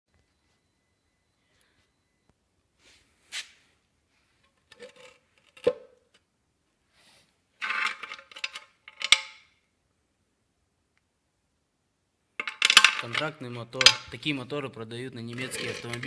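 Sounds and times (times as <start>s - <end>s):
metal clinking and knocking: 7.6s - 9.5s, 12.4s - 14.2s, 15.4s - 16.0s.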